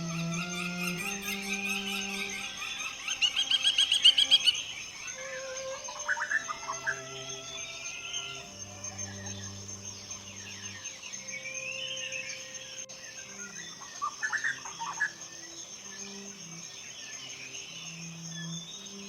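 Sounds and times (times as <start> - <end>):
soft low held tones: 0.0 - 3.0, 5.2 - 13.5
birds chirping and calling: 0.0 - 19.0
high-pitched insect drone: 0.0 - 19.0.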